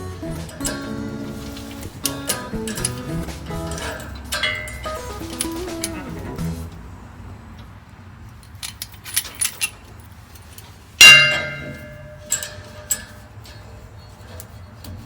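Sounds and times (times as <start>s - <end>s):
loud ringing metal clang: 0.0s - 6.0s, 11.0s - 13.7s
metal fittings clinking: 0.0s - 6.4s, 8.3s - 15.0s.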